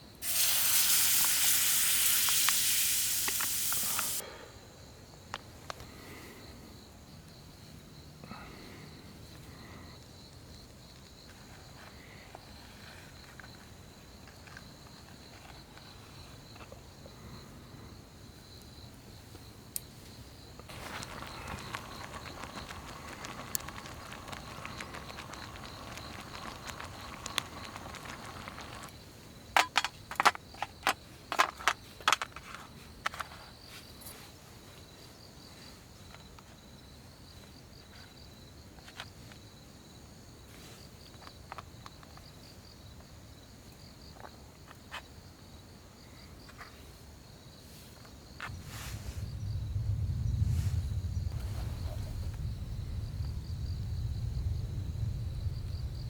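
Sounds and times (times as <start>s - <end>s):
insects droning: 0.0s - 56.0s
low rumble: 48.5s - 56.0s.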